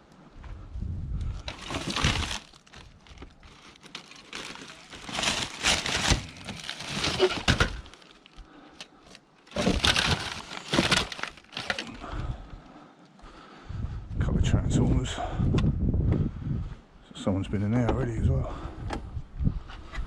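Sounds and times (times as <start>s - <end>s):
plastic and metal parts cracking: 1.4s - 12.0s.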